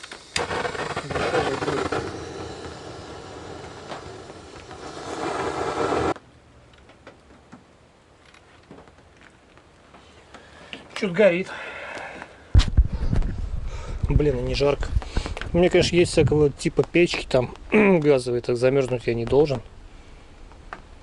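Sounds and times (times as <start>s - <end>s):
gas torch hissing: 0.0s - 6.2s.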